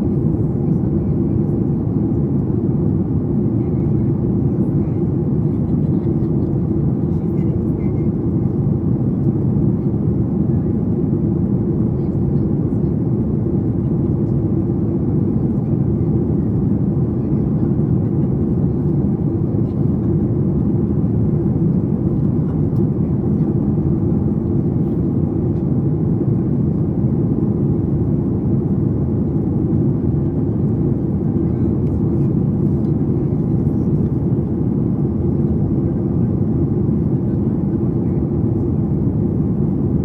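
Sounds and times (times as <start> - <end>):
airplane cabin rumble: 0.0 - 40.0.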